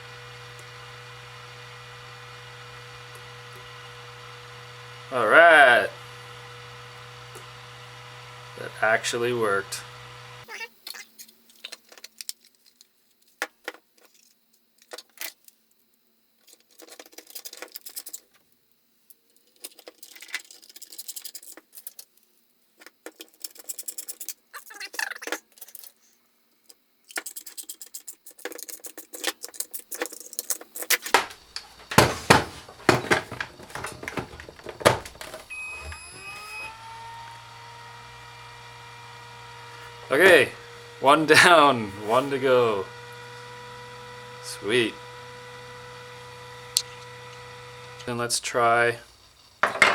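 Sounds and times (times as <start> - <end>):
small motor humming: 0.0 - 10.5, 31.4 - 49.7
plastic battery pack rattling: 16.4 - 18.4, 19.4 - 22.2, 22.8 - 26.0, 27.1 - 35.5.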